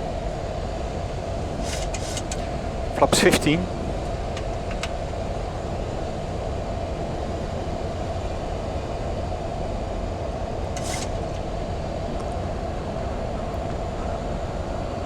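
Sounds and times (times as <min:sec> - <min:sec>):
aircraft engine hum: 0:00.0 - 0:15.0
airflow rushing in cockpit: 0:00.9 - 0:06.1.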